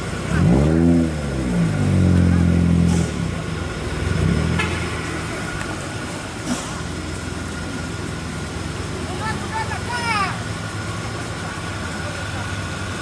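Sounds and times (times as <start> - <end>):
engine revving: 0.0 - 6.0.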